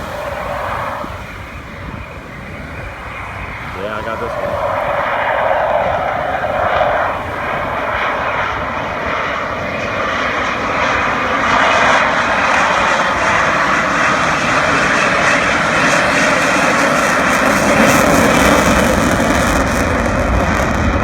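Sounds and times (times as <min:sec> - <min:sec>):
rushing sound: 0:00.0 - 0:09.4
airplane engine overhead: 0:00.0 - 0:21.0.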